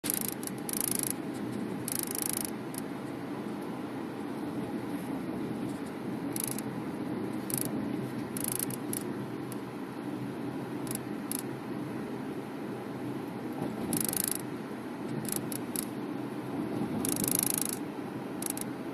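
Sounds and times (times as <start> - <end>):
high-pitched buzzing from sunroof: 0.0 - 3.0, 6.2 - 6.7, 7.4 - 9.1, 10.8 - 11.5, 13.9 - 14.6, 15.2 - 16.0, 17.0 - 18.9
car cabin noise: 0.0 - 11.5, 13.1 - 18.9.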